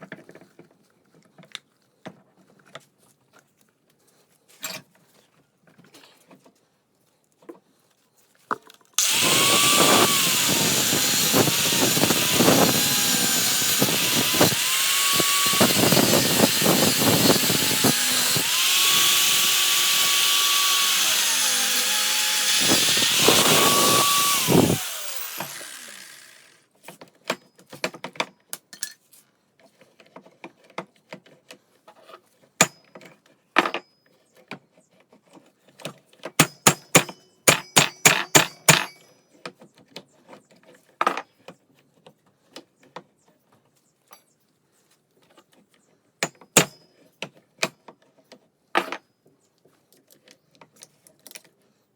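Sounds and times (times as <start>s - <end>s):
power grinder cutting metal: 9.0s - 26.6s.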